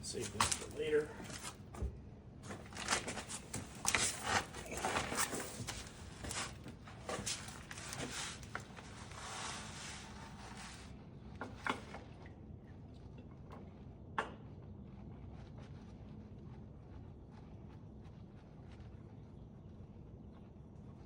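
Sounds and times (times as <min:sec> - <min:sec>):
hands rubbing and clicking parts: 0:02.5 - 0:10.8.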